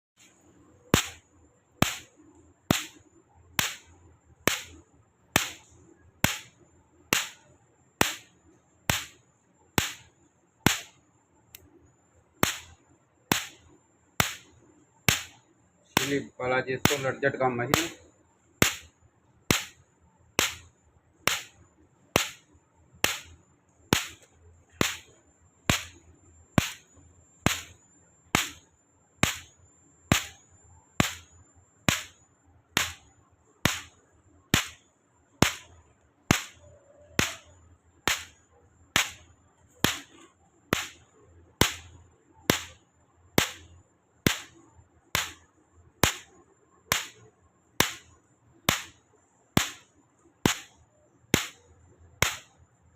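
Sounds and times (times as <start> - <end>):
electric fence energizer snapping: 20.4 - 20.7, 36.3 - 37.5, 43.4 - 43.7.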